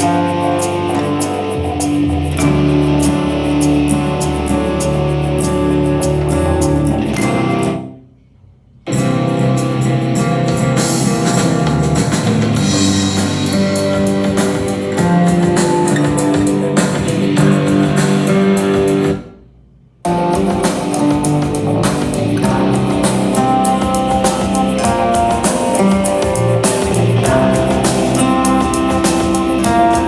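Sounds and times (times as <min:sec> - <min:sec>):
band music through speaker: 0:00.0 - 0:07.8, 0:08.9 - 0:19.2, 0:20.1 - 0:30.0.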